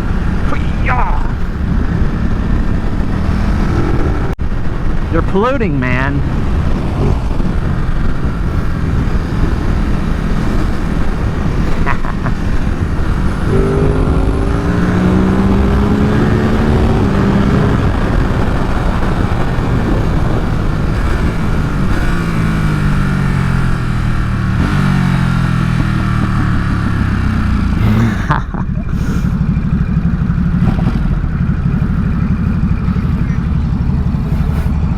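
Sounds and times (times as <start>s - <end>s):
wind rush: 0.0s - 27.9s
motorcycle engine accelerating: 0.0s - 34.9s.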